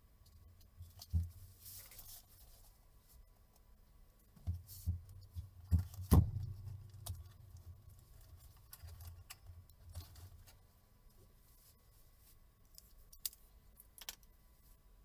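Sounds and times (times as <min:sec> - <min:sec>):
light clicks and rattles of tools: 0:12.6 - 0:14.4.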